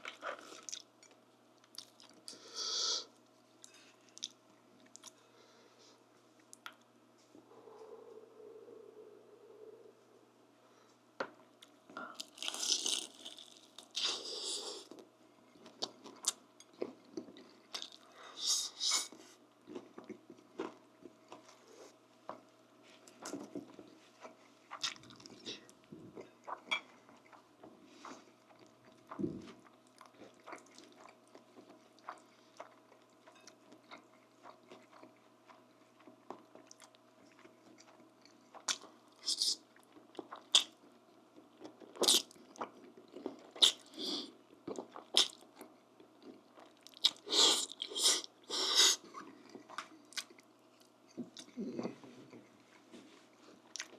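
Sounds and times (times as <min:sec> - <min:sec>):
chewing with wet mouth clicks: 0:24.7 - 0:27.7, 0:28.4 - 0:43.9, 0:44.6 - 0:48.3, 0:49.1 - 0:51.6.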